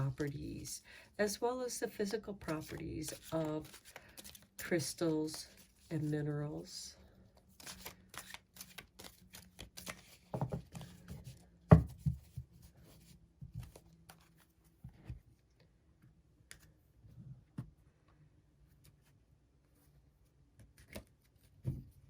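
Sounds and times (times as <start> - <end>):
cards rustling and clicking: 1.8 - 6.1, 7.2 - 11.4, 13.6 - 14.5.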